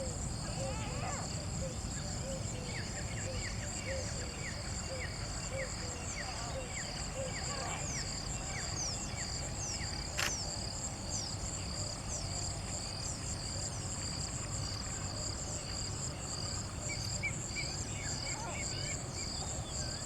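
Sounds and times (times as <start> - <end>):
insects trilling: 0.0 - 20.0
sharp click: 10.2 - 10.4.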